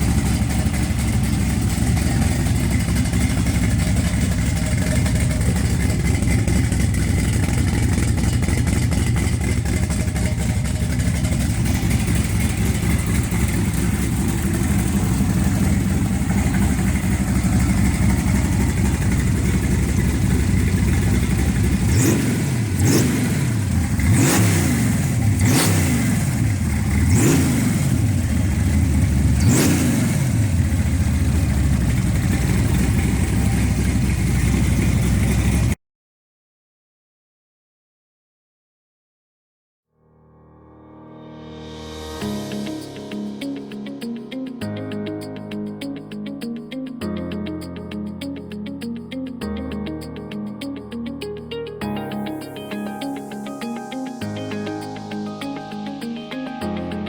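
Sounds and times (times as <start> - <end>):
truck engine idling and revving: 0.0 - 35.8.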